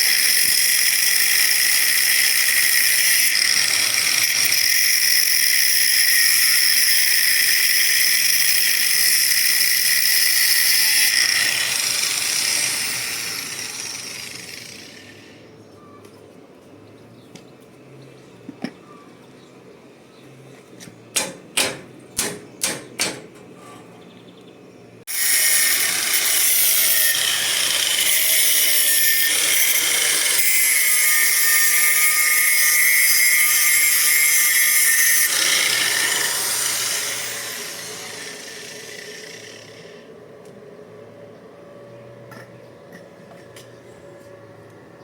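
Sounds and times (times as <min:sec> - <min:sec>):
angle grinder grinding metal: 0:00.0 - 0:15.5, 0:25.1 - 0:40.2.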